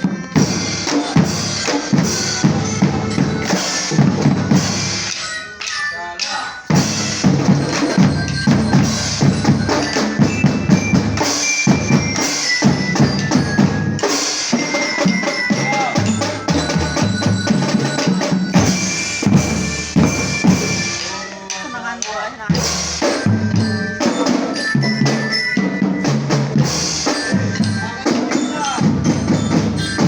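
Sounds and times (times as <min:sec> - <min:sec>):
high melody line: 0:00.0 - 0:30.0
marching drum band playing: 0:00.0 - 0:30.0.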